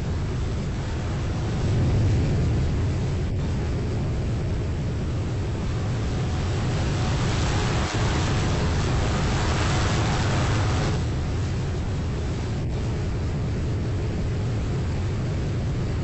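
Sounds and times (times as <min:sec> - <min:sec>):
boat engine rumble: 0:00.0 - 0:16.0
wind noise: 0:00.0 - 0:16.0
rushing water: 0:05.5 - 0:12.0.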